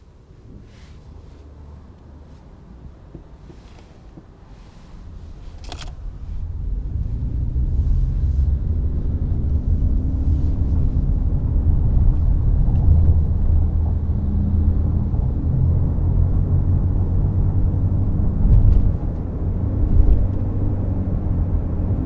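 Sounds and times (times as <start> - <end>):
car engine and road noise: 0.0 - 22.0
sharp click: 5.5 - 6.1.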